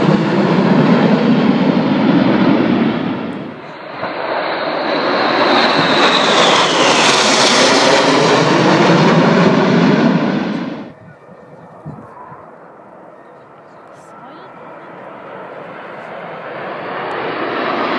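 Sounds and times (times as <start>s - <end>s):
aircraft flying past: 0.0s - 17.9s.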